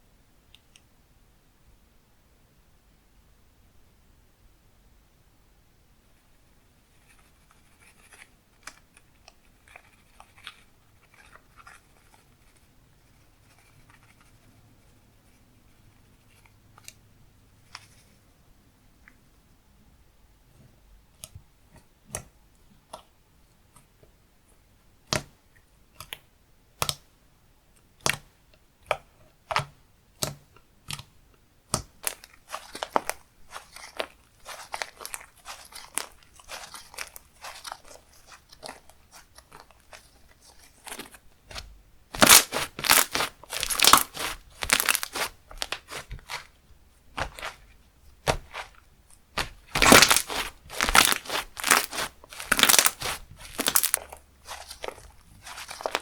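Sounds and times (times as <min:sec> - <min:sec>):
slime crackling and squishing: 0:31.9 - 0:56.0
slime clicking and popping: 0:42.2 - 0:46.5, 0:47.2 - 0:47.6, 0:48.2 - 0:56.0.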